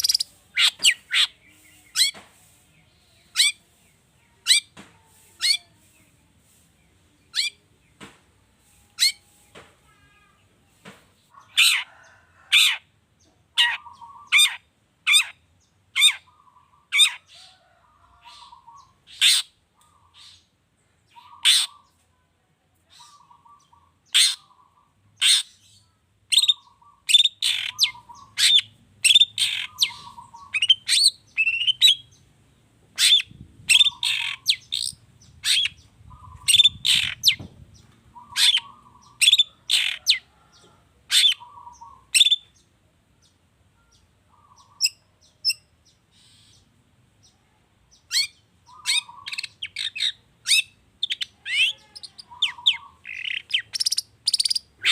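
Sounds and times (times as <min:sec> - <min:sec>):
bird singing harsh chatter: 0:00.0 - 0:02.2, 0:03.1 - 0:03.6, 0:07.2 - 0:07.6, 0:22.9 - 0:32.2, 0:33.0 - 0:40.3, 0:41.1 - 0:42.6, 0:43.9 - 0:46.7, 0:47.9 - 0:54.9.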